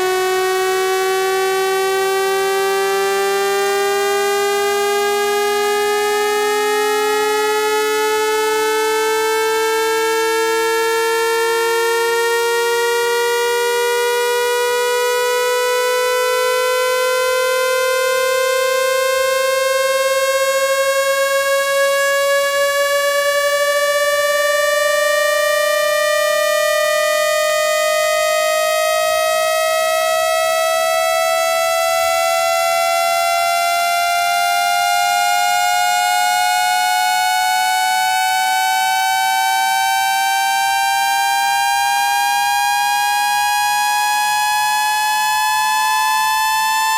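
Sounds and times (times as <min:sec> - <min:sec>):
rising buzzy tone sweep: 0:00.0 - 0:40.4
fainter lower rising tone: 0:19.4 - 0:35.8.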